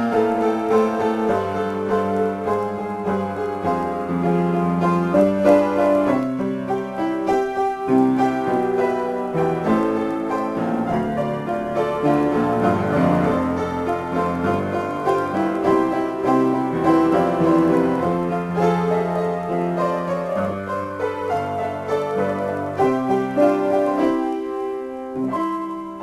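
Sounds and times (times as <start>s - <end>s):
solo piano: 0.0s - 26.0s.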